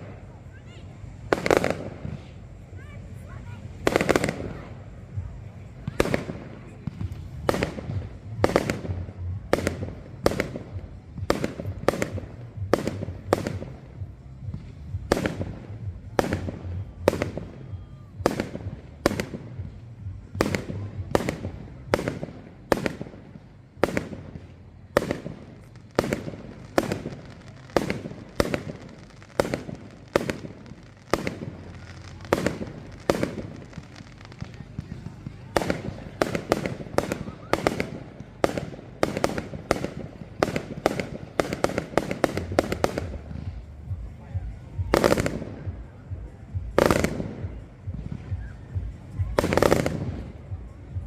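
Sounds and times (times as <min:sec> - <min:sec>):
firework bangs: 0:00.0 - 0:51.0.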